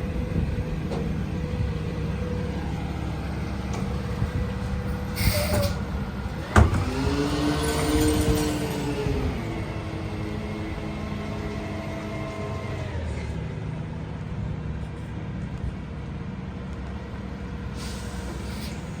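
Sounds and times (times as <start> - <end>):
garbage truck engine running: 0.0 - 14.2
air hiss: 17.8 - 19.0.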